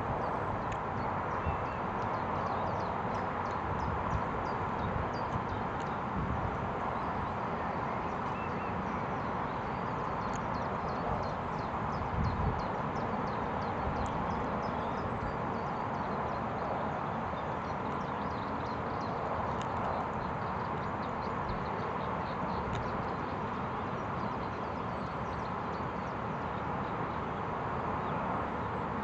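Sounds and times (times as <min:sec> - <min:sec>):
small birds chirping: 0:06.8 - 0:26.2.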